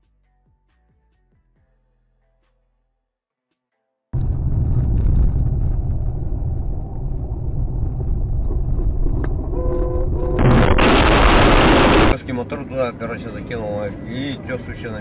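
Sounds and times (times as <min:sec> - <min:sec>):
car road and engine rumble: 0:04.2 - 0:15.0
steady tone: 0:09.6 - 0:12.2
loud rush of noise: 0:10.4 - 0:12.2.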